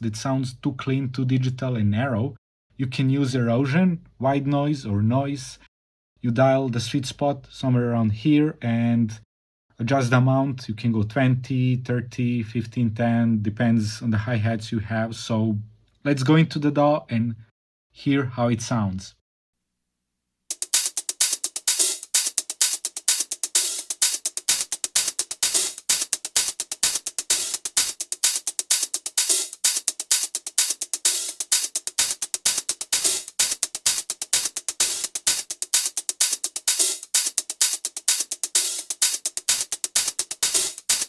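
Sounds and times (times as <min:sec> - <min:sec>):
gritty electronic hi-hat loop: 0:20.5 - 0:41.0.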